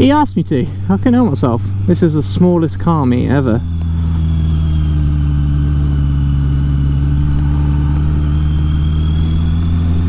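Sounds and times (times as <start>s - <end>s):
motorcycle engine running steadily: 0.0s - 10.0s
faint high whine: 3.1s - 10.0s.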